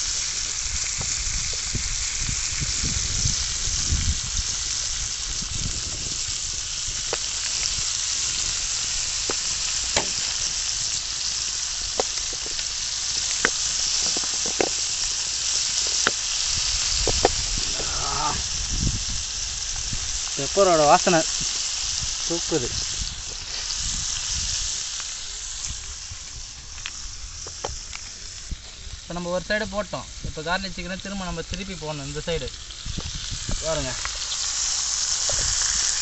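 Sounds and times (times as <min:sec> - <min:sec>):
meat sizzling on a griddle: 0:00.0 - 0:36.0
sharp popping fat: 0:08.4 - 0:18.5.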